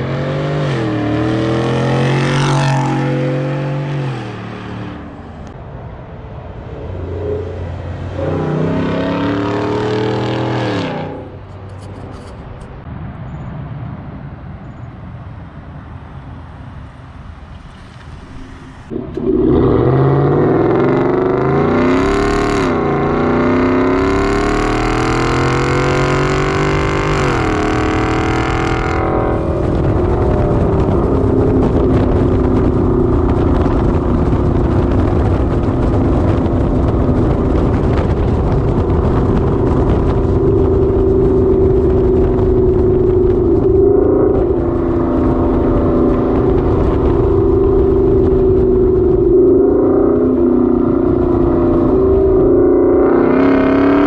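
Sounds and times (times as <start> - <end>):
truck exhaust rumbling: 0.0 - 13.0, 17.1 - 54.0.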